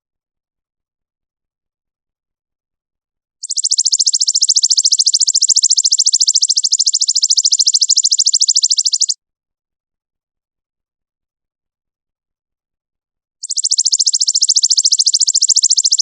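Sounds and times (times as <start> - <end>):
songbird rapid high trill: 3.4 - 9.2, 13.4 - 16.0.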